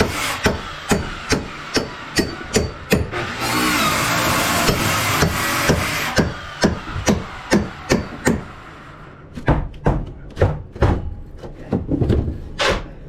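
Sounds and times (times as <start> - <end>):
hammer blows: 0.0 - 9.2.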